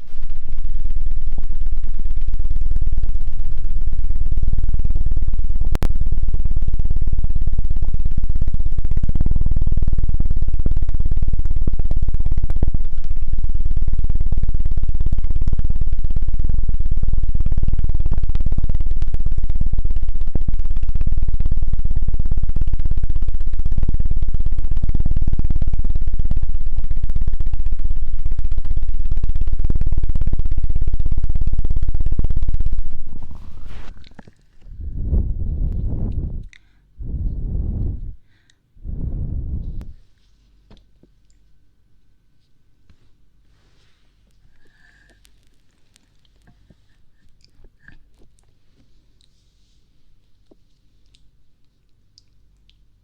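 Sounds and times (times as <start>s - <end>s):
low thumping flutter on microphone: 17.7s - 34.0s, 34.6s - 40.0s.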